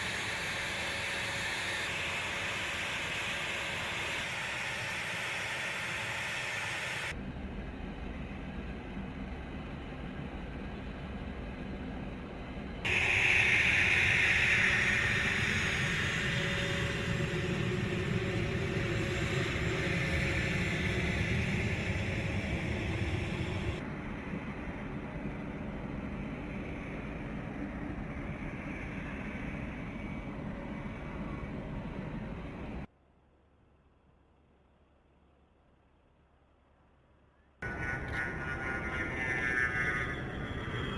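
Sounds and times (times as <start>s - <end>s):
jet aircraft rushing noise: 12.9s - 23.9s.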